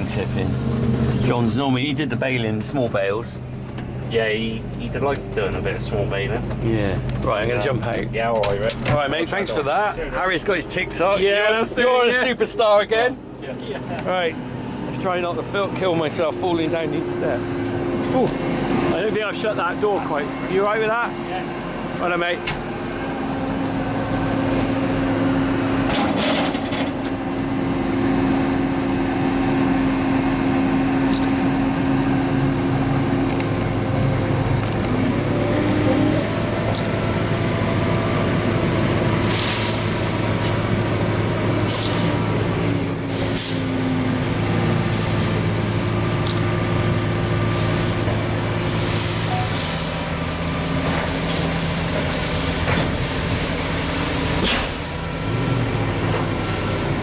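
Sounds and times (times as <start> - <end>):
diesel tractor engine running: 0.0 - 57.0
air hissing: 39.0 - 45.8, 47.4 - 55.2.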